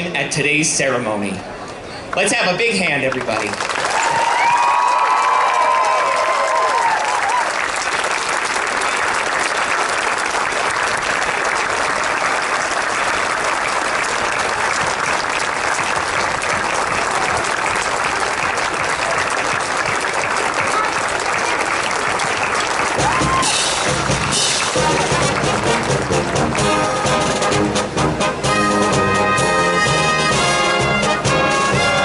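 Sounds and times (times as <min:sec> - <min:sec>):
large crowd applauding: 0:02.1 - 0:27.7.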